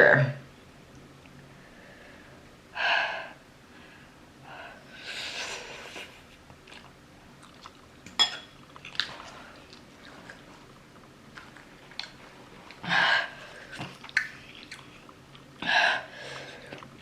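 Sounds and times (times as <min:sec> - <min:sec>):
chewing: 0:06.6 - 0:08.0, 0:08.6 - 0:12.8, 0:13.6 - 0:15.6, 0:16.6 - 0:17.0.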